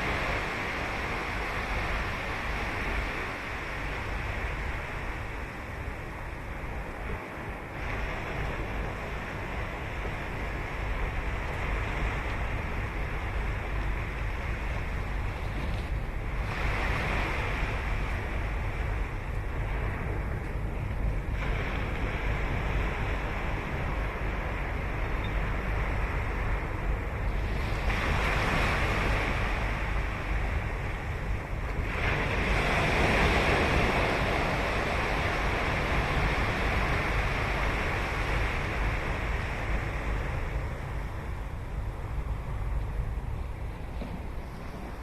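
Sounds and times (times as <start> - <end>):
ocean waves breaking on beach: 0.0 - 45.0
wind rumble on microphone: 0.0 - 45.0.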